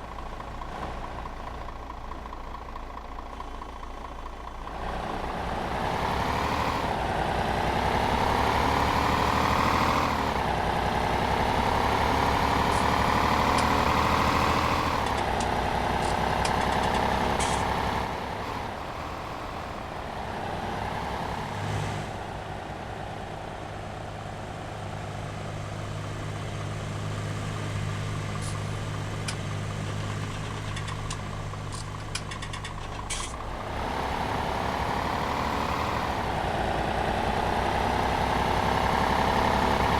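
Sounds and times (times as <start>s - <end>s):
tractor engine revving and idling: 0.0s - 39.9s
sharp clicks: 15.0s - 17.7s, 30.2s - 33.4s.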